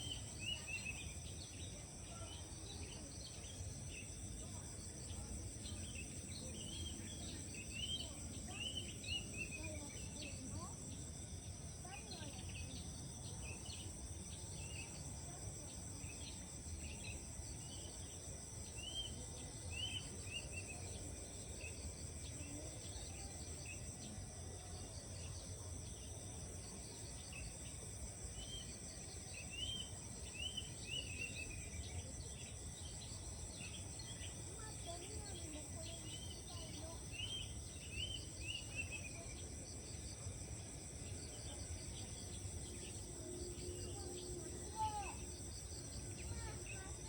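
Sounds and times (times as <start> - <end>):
insects chorus: 0.0 - 47.0.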